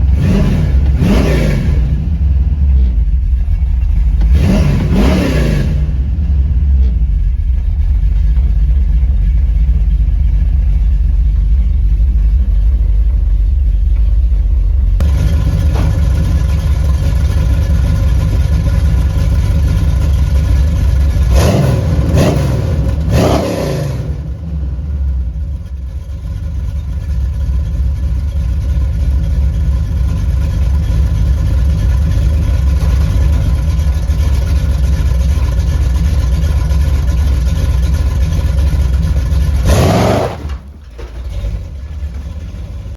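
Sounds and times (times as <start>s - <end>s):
throttle blips revving engine: 0.0s - 3.0s, 3.8s - 6.9s, 21.0s - 25.1s, 37.7s - 40.7s
engine idling with deep rumble: 0.0s - 42.9s.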